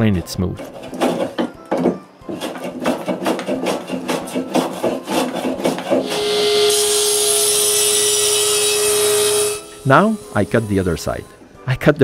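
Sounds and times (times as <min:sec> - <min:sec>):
hand plane shaving wood: 0:00.6 - 0:11.3
power saw humming: 0:02.3 - 0:11.5.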